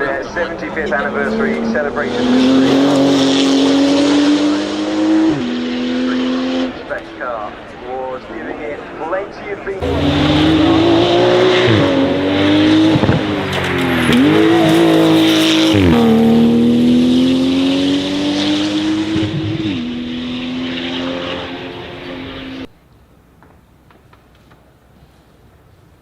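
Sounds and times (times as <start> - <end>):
car engine accelerating with upshifts: 0.1 - 7.0, 9.8 - 22.7.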